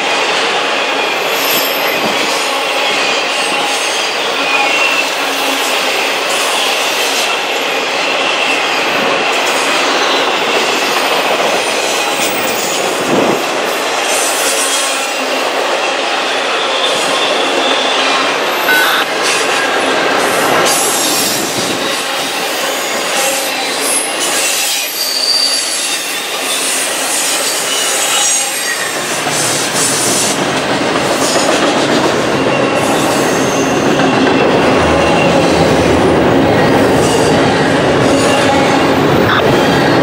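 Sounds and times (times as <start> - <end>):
faint high wheel squeal: 24.7 - 26.2.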